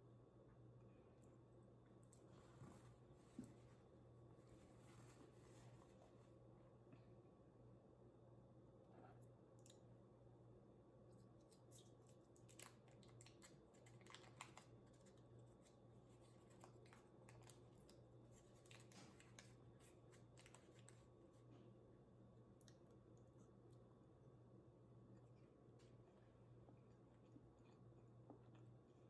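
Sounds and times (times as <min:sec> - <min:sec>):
low steady hum: 0:00.0 - 0:29.0
eating and food handling: 0:11.0 - 0:29.0.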